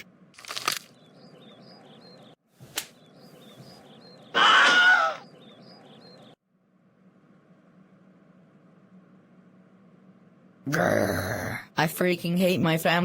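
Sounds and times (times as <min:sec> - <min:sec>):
small birds chirping: 0:00.5 - 0:06.4.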